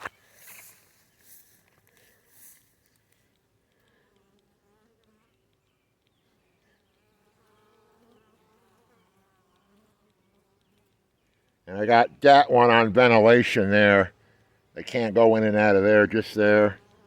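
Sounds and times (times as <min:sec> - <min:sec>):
honeybees buzzing: 0:03.7 - 0:17.0.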